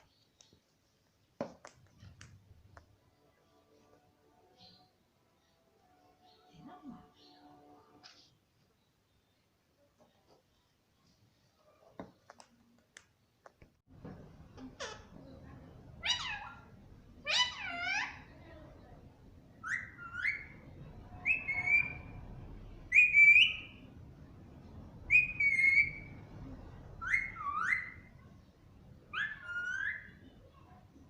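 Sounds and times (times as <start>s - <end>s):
parrot whistle-like calls: 21.2s - 22.2s, 22.9s - 23.8s, 25.1s - 26.1s, 27.0s - 28.1s, 29.1s - 30.2s.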